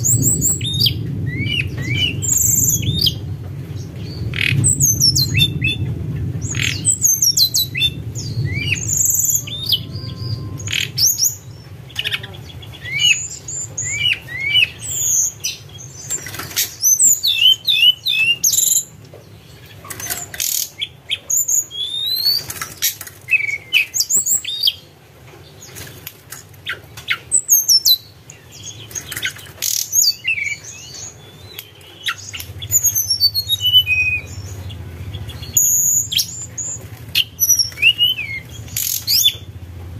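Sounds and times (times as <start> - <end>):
bird whistling and chirping: 0.0 - 3.2, 4.0 - 11.5, 12.8 - 18.9, 19.9 - 24.8, 26.7 - 39.5
steady low hum: 0.0 - 16.3, 32.2 - 39.9.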